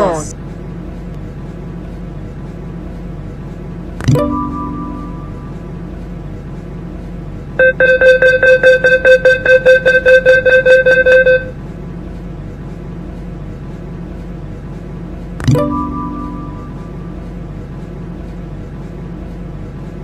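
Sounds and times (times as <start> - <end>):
low train hum: 0.0 - 20.0
rapid electronic door warning beeps: 7.6 - 11.6.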